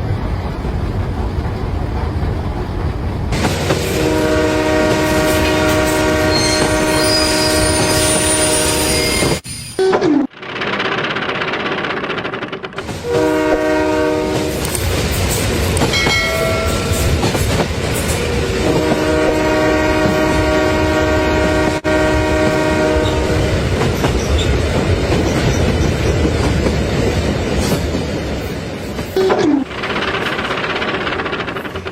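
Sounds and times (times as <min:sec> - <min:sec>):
train rumbling on track: 0:00.0 - 0:31.9
train horn blasts: 0:03.8 - 0:09.3, 0:13.0 - 0:14.7, 0:18.4 - 0:23.5.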